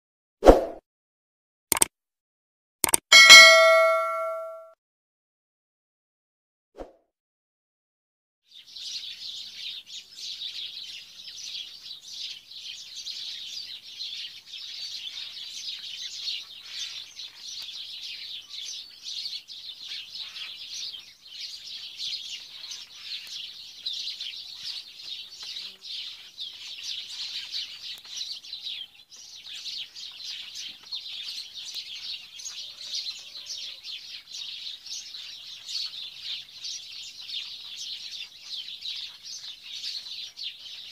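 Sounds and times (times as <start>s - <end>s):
small birds chirping: 8.5s - 40.9s.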